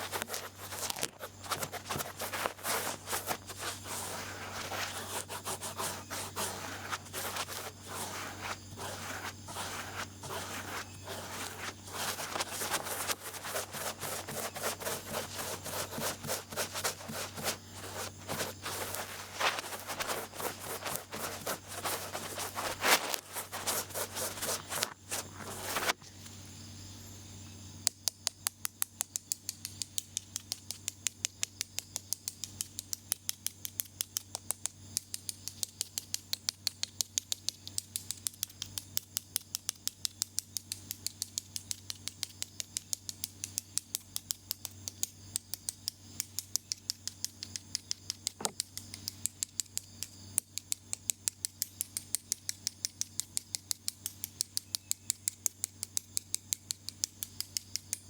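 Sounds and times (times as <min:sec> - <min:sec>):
ear pick scratching and clicking: 0:00.0 - 0:26.0
faint low hum: 0:00.0 - 0:27.9.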